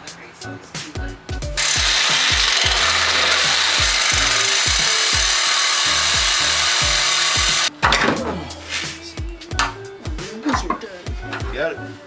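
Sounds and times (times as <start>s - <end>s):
power saw cutting metal pipe: 1.6s - 7.7s.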